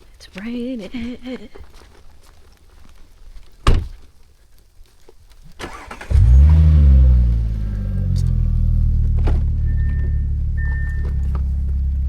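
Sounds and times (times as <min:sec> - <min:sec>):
car engine starting and idling: 0:05.6 - 0:12.0.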